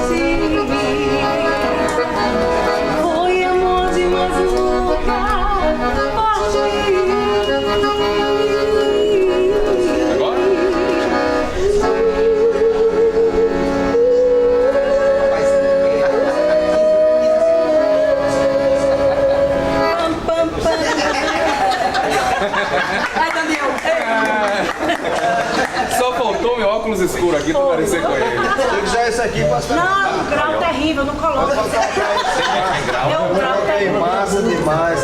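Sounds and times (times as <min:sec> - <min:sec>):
live band playing: 0:00.0 - 0:22.6.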